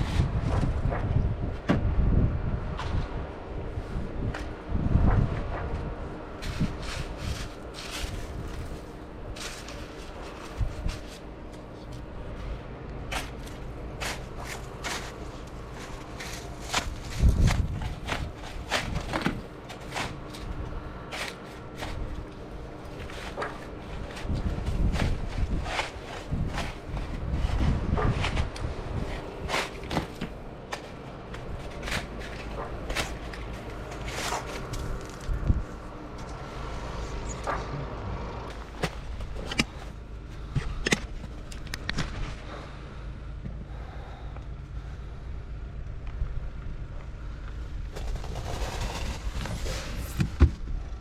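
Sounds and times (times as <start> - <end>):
low rumble of wind: 0.0 - 51.0
snow crunching: 6.4 - 35.4.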